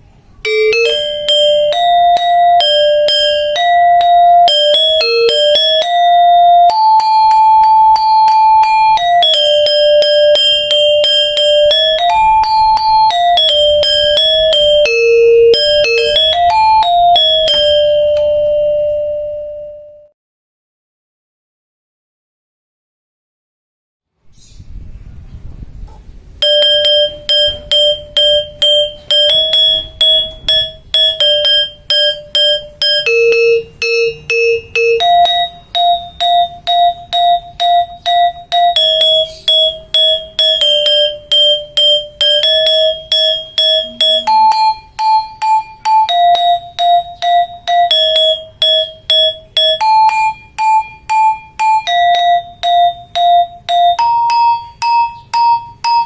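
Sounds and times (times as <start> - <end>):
metallophone struck notes: 0.0 - 20.1, 26.4 - 56.0.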